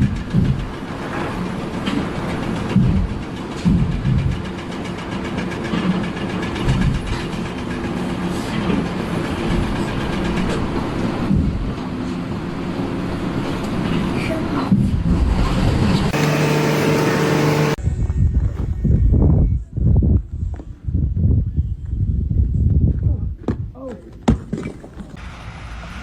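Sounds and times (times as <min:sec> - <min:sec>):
mechanical rumble with hum: 0:16.1 - 0:18.3.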